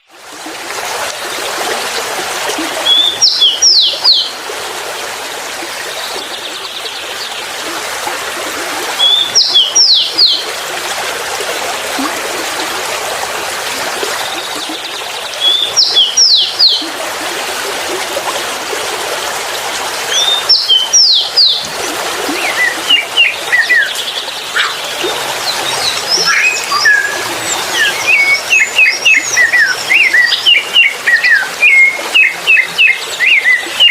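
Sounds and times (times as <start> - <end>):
running water rushing: 0.0 - 33.9
birds chirping: 2.8 - 4.4, 8.9 - 10.6, 14.0 - 16.9, 20.1 - 33.9
songbird whistled phrase: 26.2 - 33.9.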